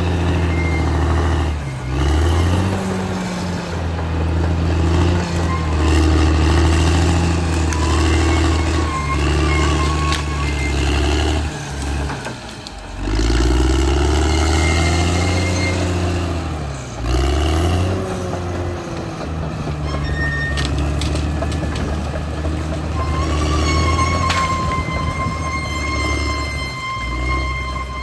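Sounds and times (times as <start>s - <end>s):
bulldozer diesel engine under load: 0.0s - 28.0s.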